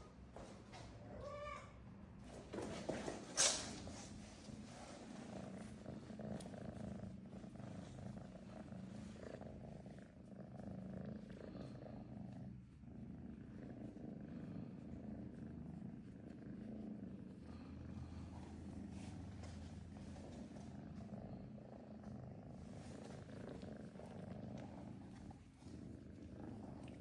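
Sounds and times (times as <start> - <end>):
kitten purring: 3.7 - 27.0.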